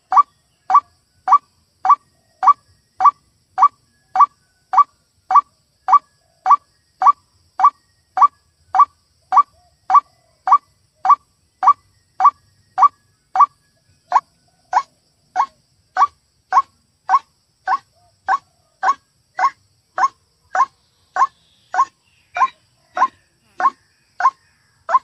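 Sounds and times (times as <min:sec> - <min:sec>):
waterhen calling: 0:14.1 - 0:25.0.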